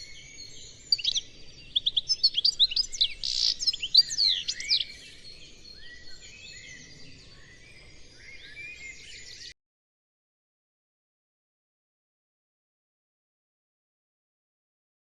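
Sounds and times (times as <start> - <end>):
songbirds chirping and twittering: 0.0 - 9.6.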